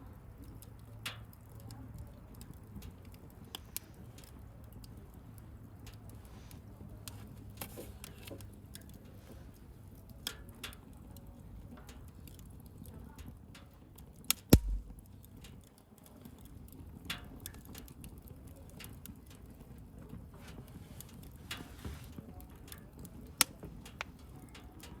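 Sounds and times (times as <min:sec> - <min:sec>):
wood fire crackling: 0:00.4 - 0:15.4, 0:17.4 - 0:25.0
sharp pops: 0:14.5 - 0:15.0
low thump: 0:14.6 - 0:15.0.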